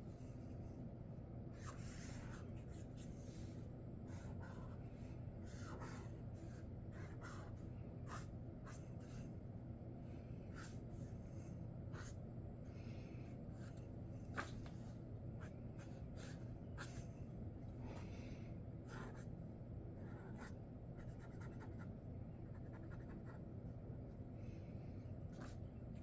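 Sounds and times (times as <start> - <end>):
faint low hum: 0.0 - 26.0
marker scratching strokes: 4.1 - 9.1.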